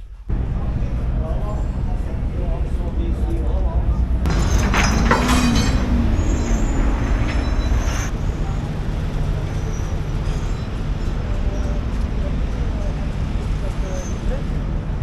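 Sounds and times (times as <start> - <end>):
low rumble of ferry: 0.0 - 15.0
scraping and rustling: 4.2 - 8.1.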